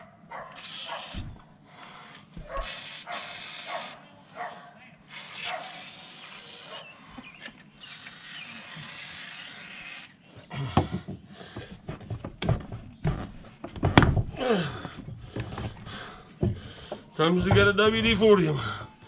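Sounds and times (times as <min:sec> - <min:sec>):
tire irons knocking and scraping: 0:10.7 - 0:19.0.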